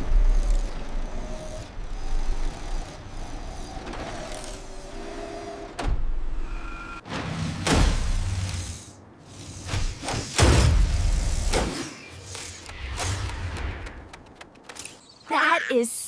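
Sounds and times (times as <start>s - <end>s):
whirring servo tones: 0.0s - 5.8s
low mechanical rumble: 0.0s - 6.6s.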